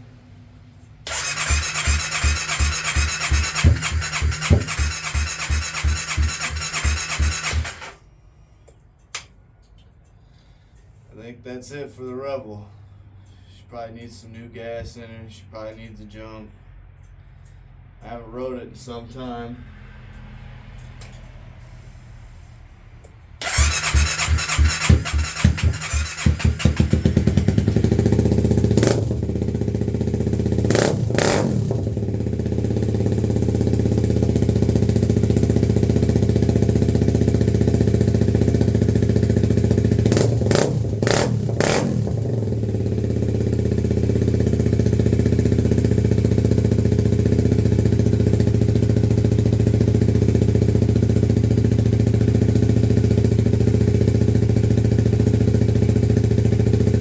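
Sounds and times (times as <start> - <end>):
motorcycle engine revving and idling: 1.1 - 8.0, 23.1 - 57.0.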